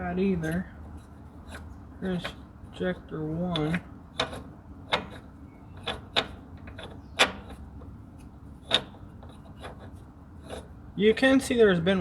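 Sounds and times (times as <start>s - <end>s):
knocks of tools and hard parts: 5.8s - 7.6s.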